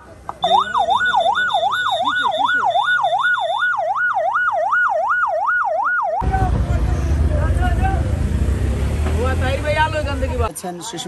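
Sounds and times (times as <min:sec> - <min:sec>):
electronic yelp siren: 0:00.4 - 0:06.2.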